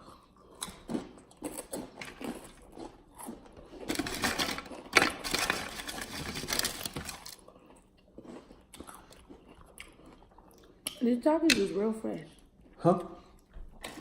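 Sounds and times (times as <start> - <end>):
chips crunching: 0.6 - 10.1.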